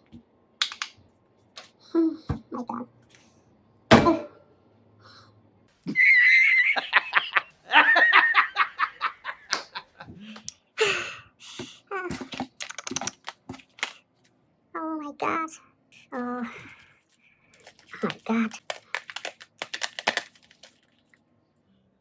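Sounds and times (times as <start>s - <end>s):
high-pitched laughter: 5.8s - 10.1s.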